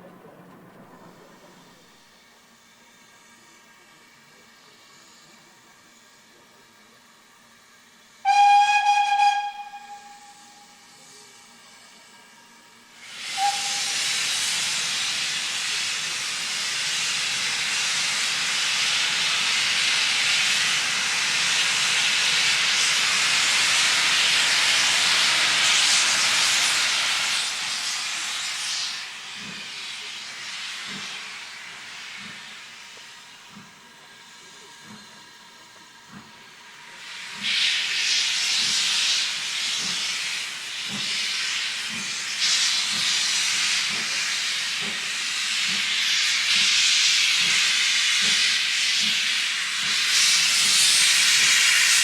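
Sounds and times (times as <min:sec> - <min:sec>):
steam locomotive whistle: 0:08.2 - 0:11.0, 0:13.1 - 0:14.3
hiss of escaping steam: 0:12.9 - 0:35.2, 0:36.1 - 0:52.0.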